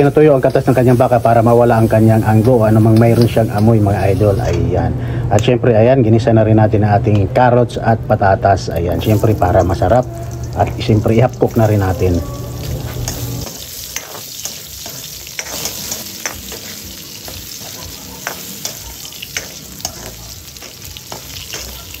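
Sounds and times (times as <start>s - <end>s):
vegetables sizzling in oil: 0.0s - 4.7s, 8.9s - 22.0s
metal ladle scraping and clicking: 13.0s - 16.7s.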